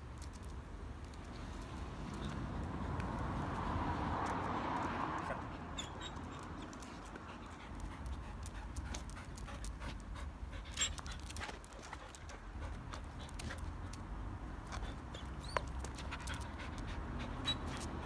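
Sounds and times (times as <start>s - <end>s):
dog panting: 5.2s - 14.0s, 14.6s - 18.0s.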